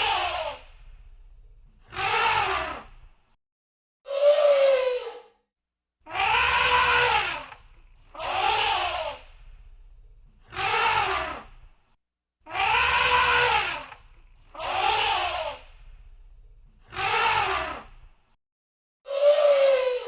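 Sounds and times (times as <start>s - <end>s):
elephant trumpeting: 6.1s - 7.6s, 12.5s - 14.0s.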